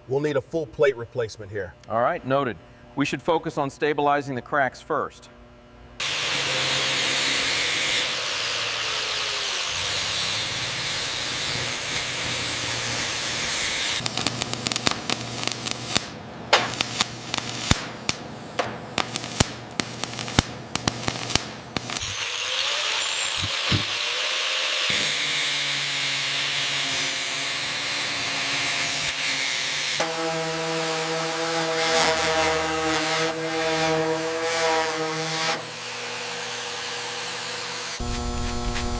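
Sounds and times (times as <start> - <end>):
power tool hissing on metal: 6.0 - 16.0, 21.0 - 32.1, 38.0 - 38.9.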